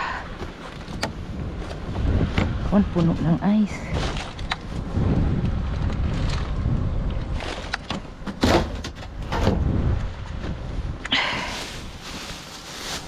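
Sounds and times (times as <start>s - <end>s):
steady low rumble: 0.0s - 13.0s
plastic packaging crackling: 11.7s - 13.0s.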